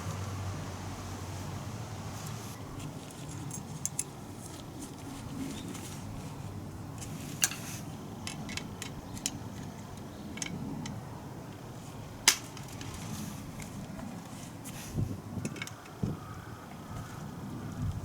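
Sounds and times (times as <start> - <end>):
tools clicking and tapping: 8.2 - 11.0.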